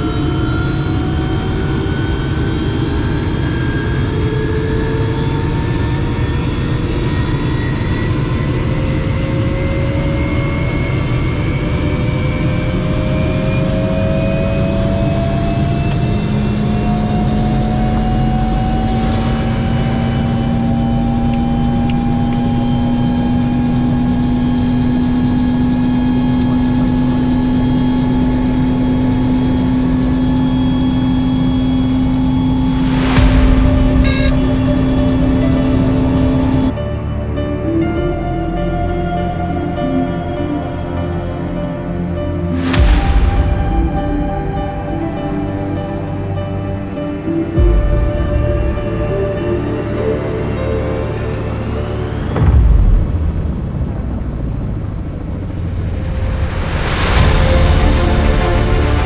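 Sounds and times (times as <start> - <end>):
helicopter turbine whine: 0.0 - 59.0
steady low rumble: 31.8 - 59.0.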